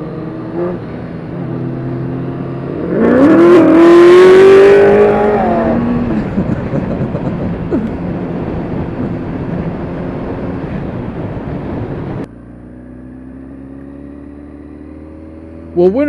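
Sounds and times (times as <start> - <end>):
motorcycle engine: 0.0 - 16.0
wind rush: 2.4 - 12.3.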